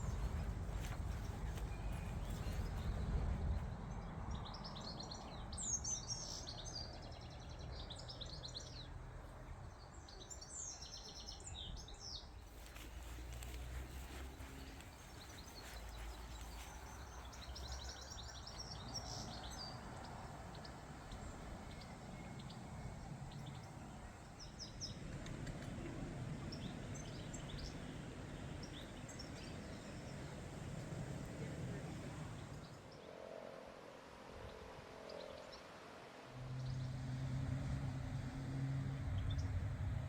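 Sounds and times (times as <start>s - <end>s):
low outdoor rumble: 0.0s - 32.9s, 36.3s - 40.0s
songbird twittering: 10.1s - 25.0s.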